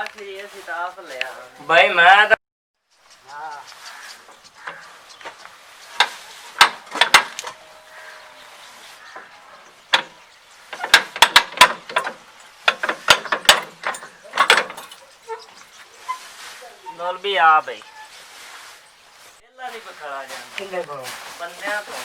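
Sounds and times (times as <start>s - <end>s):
sharp knocks and clicks: 3.5s - 7.6s, 9.9s - 15.7s.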